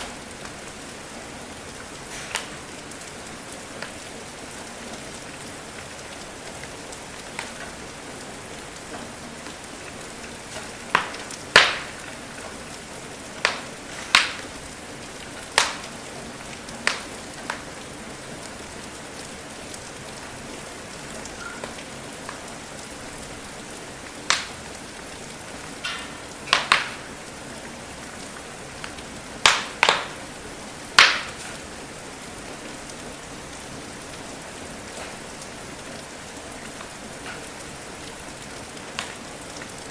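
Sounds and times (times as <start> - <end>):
steady rain hiss: 0.0 - 39.9
wood fire crackling and popping: 0.0 - 39.9.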